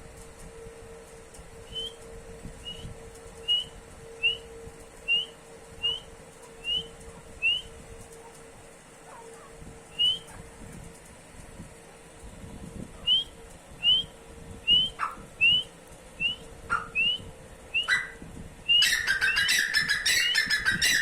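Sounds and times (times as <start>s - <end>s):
francolin whistled calls: 1.6s - 2.0s, 2.6s - 4.5s, 5.1s - 7.7s, 9.9s - 10.4s, 13.0s - 21.0s.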